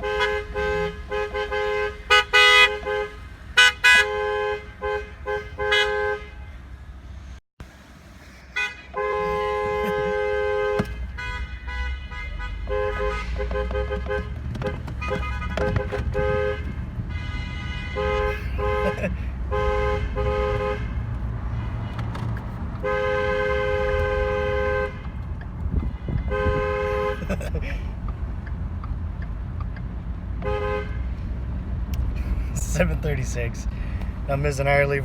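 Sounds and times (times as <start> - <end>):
two-note vehicle horn beeping: 0.0 - 6.5, 8.6 - 14.3, 25.7 - 27.3
low engine rumble: 20.6 - 35.0.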